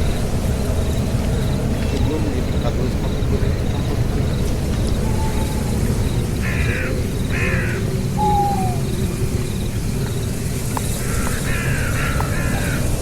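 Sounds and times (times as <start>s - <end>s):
harsh animal calls: 4.3s - 9.7s.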